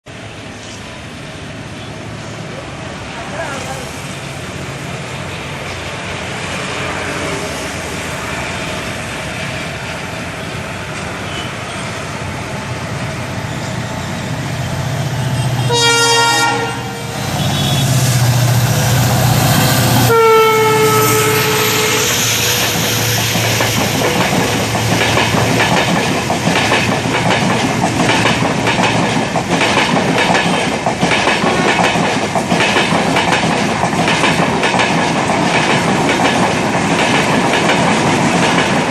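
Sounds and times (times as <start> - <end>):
locomotive drone: 0.1 - 38.9
locomotive horn: 15.2 - 18.3, 20.0 - 23.2
train wheels clattering over rail joints: 22.5 - 38.9.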